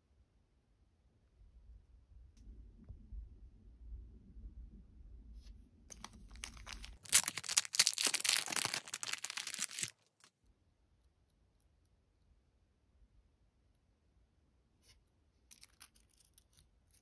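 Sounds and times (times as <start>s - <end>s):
packaging being torn open: 5.9s - 9.9s.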